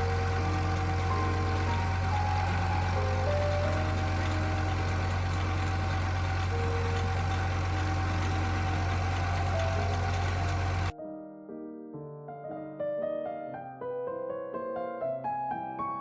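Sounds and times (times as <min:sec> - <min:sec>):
tractor engine running under load: 0:00.0 - 0:10.9
piano music: 0:00.0 - 0:16.0.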